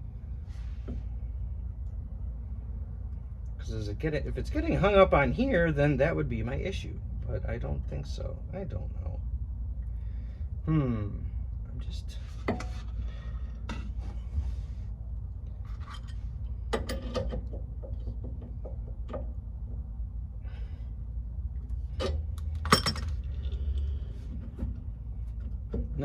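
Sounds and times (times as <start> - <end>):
steady low hum: 0.0 - 26.0
metal tools clinking and clanking: 22.0 - 23.7.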